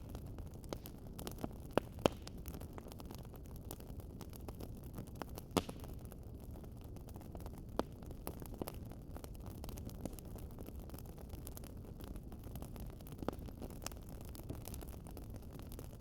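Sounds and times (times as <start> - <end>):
sharp pops of fire: 0.0 - 4.6, 5.2 - 6.1
wood fire crackling: 0.0 - 16.0.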